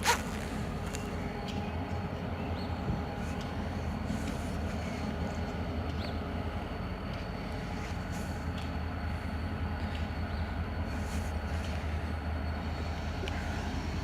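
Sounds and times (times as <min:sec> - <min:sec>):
diesel locomotive engine humming: 0:00.0 - 0:14.0.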